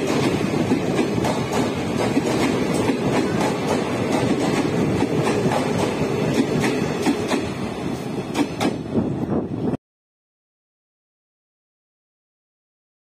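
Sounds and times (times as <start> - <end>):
wheels clicking over rail joints: 0.0 - 8.8
train wheels rumbling on rail: 0.0 - 9.8.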